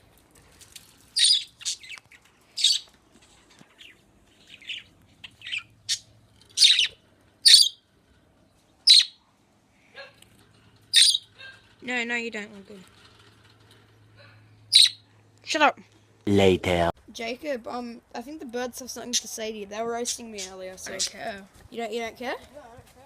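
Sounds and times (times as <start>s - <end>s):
birds squawking and chirping: 1.2s - 9.2s, 10.0s - 11.7s, 14.1s - 15.1s.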